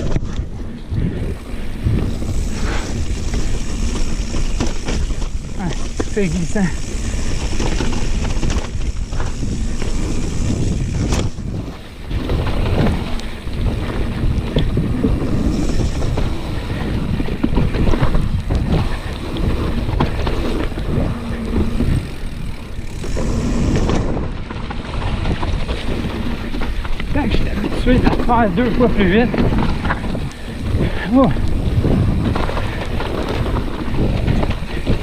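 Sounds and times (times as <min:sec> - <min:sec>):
bike tyres rumbling: 0:00.0 - 0:35.0
wind buffeting microphone: 0:00.0 - 0:35.0
bike knocking over bumps: 0:01.3 - 0:35.0.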